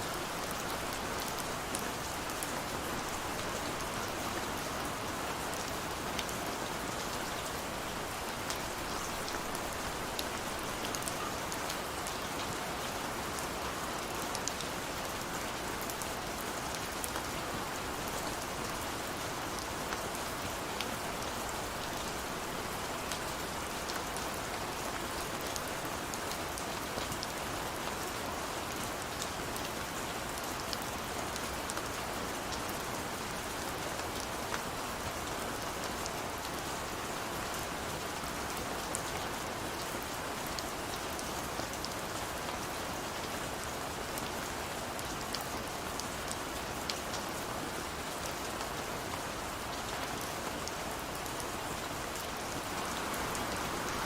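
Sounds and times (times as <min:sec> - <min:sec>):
rain hissing: 0:52.0 - 0:54.0.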